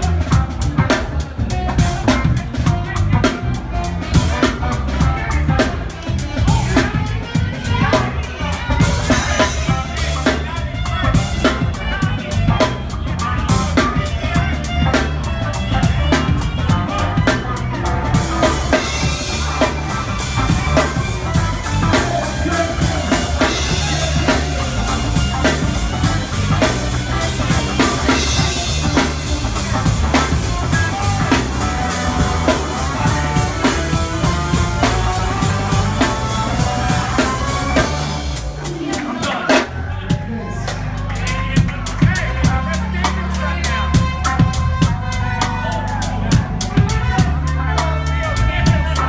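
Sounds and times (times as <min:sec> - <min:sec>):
live rock band playing: 0:00.0 - 0:49.0
cymbals washing: 0:01.7 - 0:39.8.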